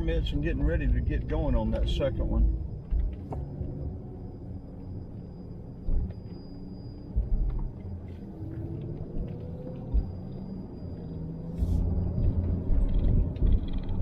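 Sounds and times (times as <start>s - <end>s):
car rumbling over road: 0.0s - 14.0s
low thumps: 7.1s - 7.8s, 9.0s - 10.5s.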